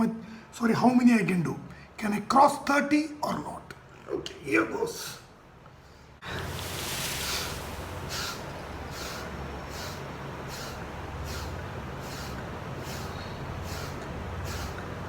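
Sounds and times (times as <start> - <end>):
person breathing forcefully: 6.2 - 15.0.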